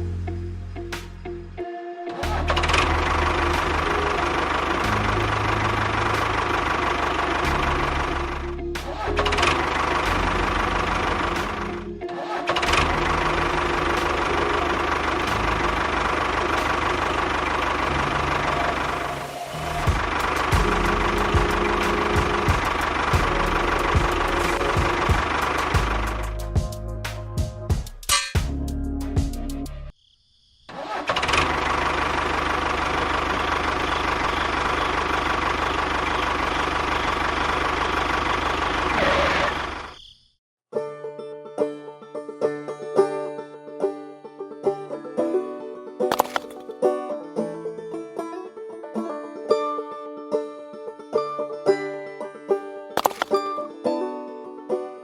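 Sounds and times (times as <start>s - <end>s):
small engine running: 2.2s - 26.5s, 30.8s - 39.9s, 46.1s - 46.6s, 53.0s - 53.4s.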